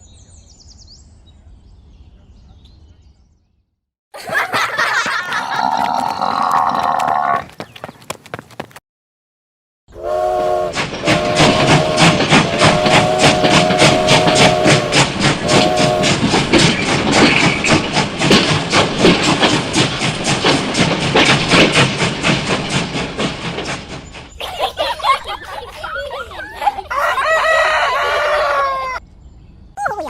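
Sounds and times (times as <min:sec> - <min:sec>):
whistle blasts: 0:10.0 - 0:16.2.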